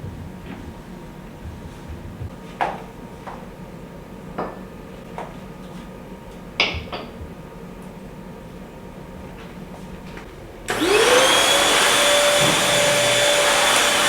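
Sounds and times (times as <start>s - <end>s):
steady low hum: 0.0s - 4.4s.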